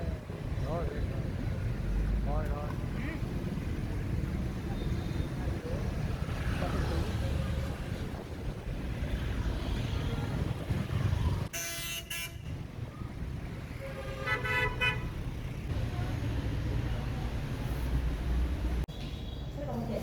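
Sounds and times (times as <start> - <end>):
road traffic rumble: 0.0 - 20.0
vehicle horn honking: 11.5 - 12.5.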